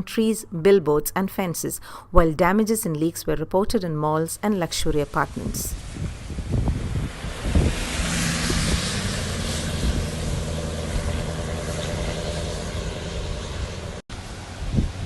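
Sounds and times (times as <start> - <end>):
vehicle engine running: 5.8 - 15.0.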